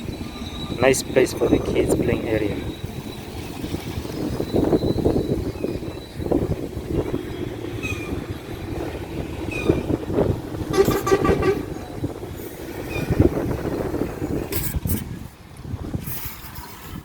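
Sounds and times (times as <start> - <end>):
outdoor rumble: 0.0 - 16.1
short horn toot: 10.7 - 12.0.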